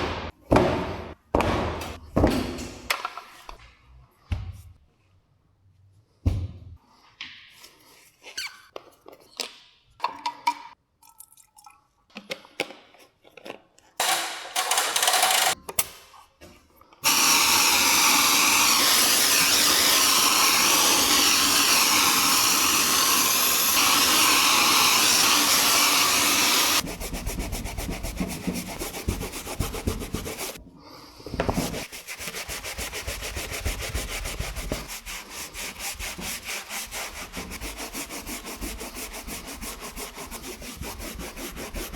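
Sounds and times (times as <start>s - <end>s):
brush scrubbing: 17.0s - 30.6s, 31.4s - 41.9s.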